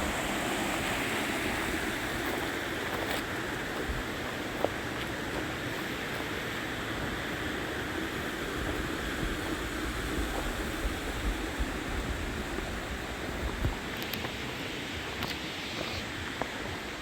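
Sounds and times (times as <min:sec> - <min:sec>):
flowing water rushing: 0:00.0 - 0:17.0
wind on microphone: 0:08.5 - 0:13.9.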